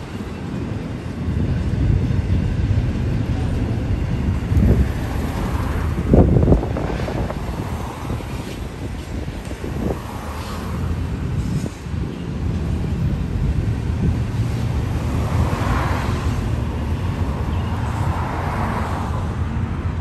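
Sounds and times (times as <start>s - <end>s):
freight train wheels rumbling: 0.0s - 20.0s
cars passing hiss: 4.5s - 20.0s.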